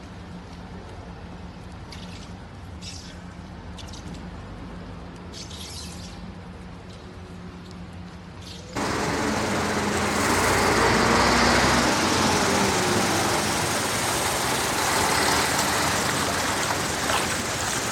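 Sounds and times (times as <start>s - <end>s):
wind: 0.0s - 17.9s
heavy rain: 8.8s - 17.9s.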